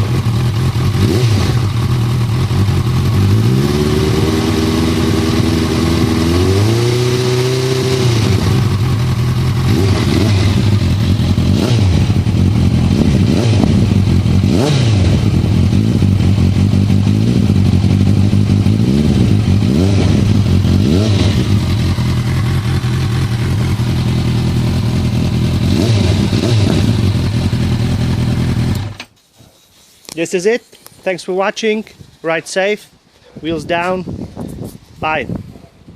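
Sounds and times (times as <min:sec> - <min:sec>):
motorcycle engine revving: 0:00.0 - 0:29.1.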